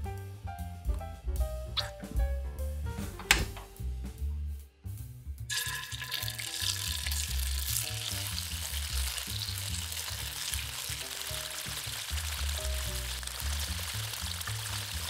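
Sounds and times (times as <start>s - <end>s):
tofu sizzling in oil: 5.5s - 15.0s.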